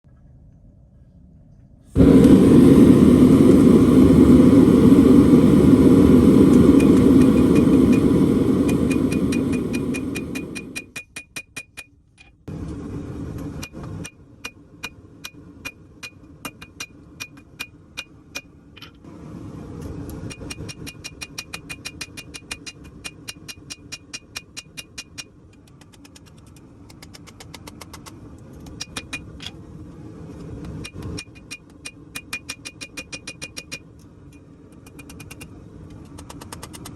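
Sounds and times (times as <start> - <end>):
faint rumble: 0.1 - 10.9
loud steady roar: 2.0 - 10.9.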